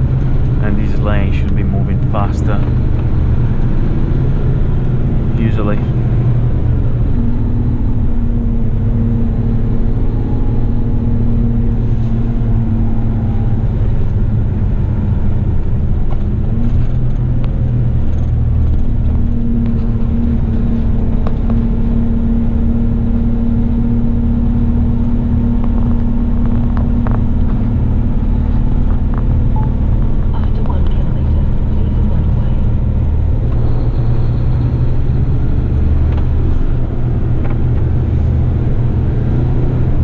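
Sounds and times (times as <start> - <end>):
road noise: 0.0 - 40.0
truck diesel engine rumbling: 0.0 - 40.0
humming tone: 1.4 - 40.0.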